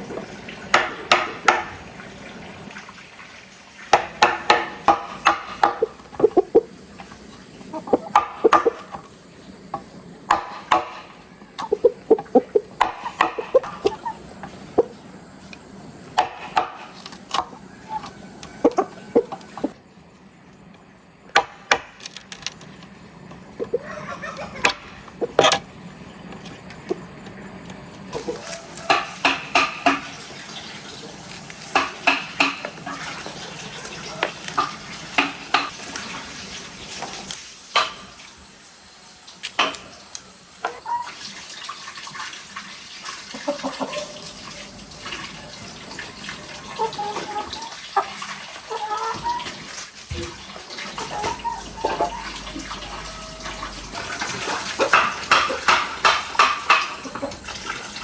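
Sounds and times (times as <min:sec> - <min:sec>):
water splashing and running: 0:00.0 - 0:09.4, 0:26.4 - 0:58.0.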